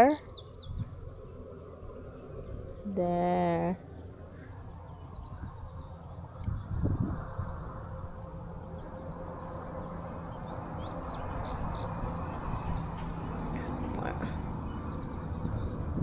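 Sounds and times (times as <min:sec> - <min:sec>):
bird chirps: 0:00.0 - 0:01.4, 0:08.7 - 0:12.0
insects droning: 0:00.0 - 0:16.0
low rumble: 0:00.0 - 0:16.0.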